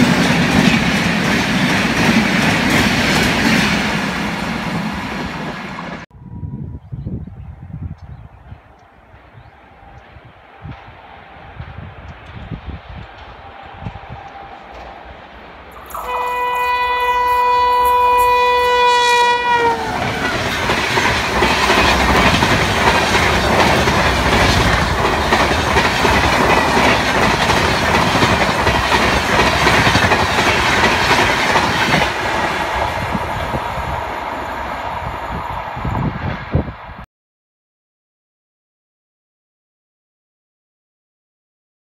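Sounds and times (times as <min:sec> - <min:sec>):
train coaches rushing and rattling: 0:00.0 - 0:06.0, 0:08.4 - 0:36.5
locomotive horn blast: 0:15.7 - 0:20.6.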